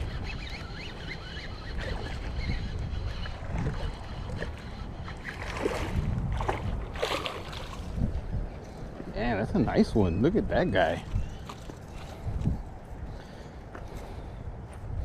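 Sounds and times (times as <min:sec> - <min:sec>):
water lapping against kayak: 0:00.0 - 0:08.4
wind buffeting microphone: 0:00.0 - 0:15.0.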